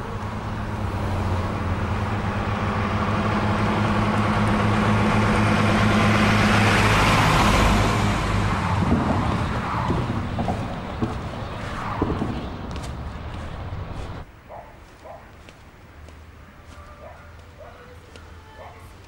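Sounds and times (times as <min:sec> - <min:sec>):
lorry diesel engine passing by: 0:00.0 - 0:14.3.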